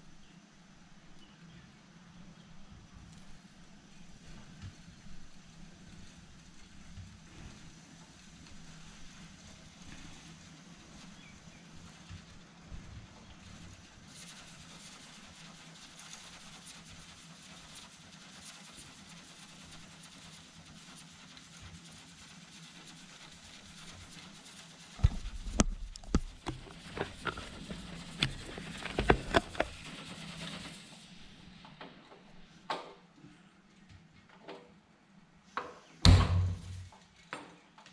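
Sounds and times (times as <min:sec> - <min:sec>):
steam engine hissing: 0:13.4 - 0:31.6.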